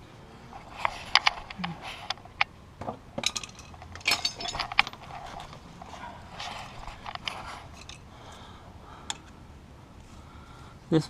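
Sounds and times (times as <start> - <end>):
hand tools clicking and clinking: 3.2 - 8.1.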